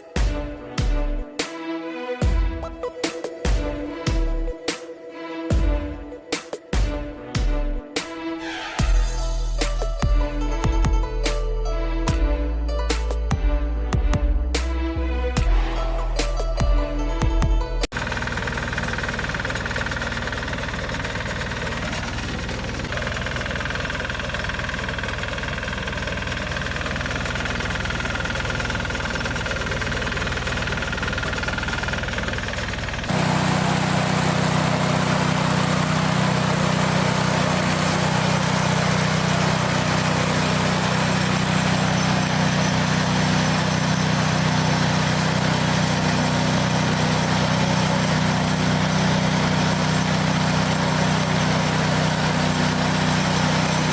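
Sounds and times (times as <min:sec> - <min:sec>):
tractor engine: 0:14.8 - 0:53.9
hay baler running: 0:17.9 - 0:53.9.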